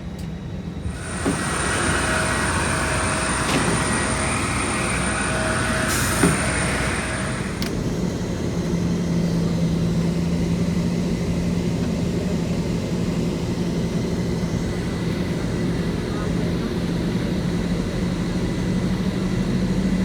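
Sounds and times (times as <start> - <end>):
aircraft cabin rumble and hiss: 11.6 - 19.3.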